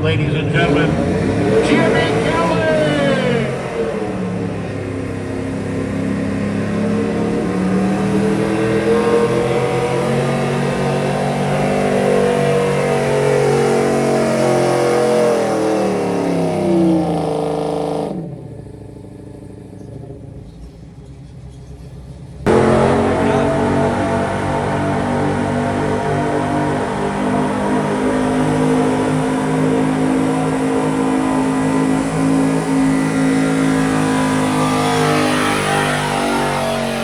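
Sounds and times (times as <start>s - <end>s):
pickup truck engine at full throttle: 0.0s - 37.0s
loud music: 0.4s - 3.9s, 22.5s - 31.5s.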